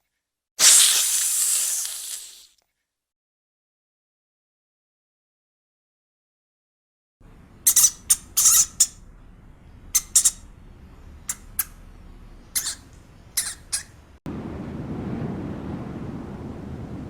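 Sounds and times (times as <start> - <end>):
bird squawking: 7.6 - 9.0, 9.9 - 10.6, 11.2 - 14.1
wind noise: 14.3 - 17.0.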